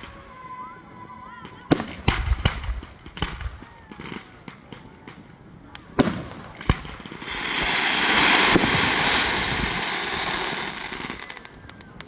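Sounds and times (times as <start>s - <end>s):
firework bangs: 5.9s - 11.6s
firework hiss: 7.0s - 11.6s.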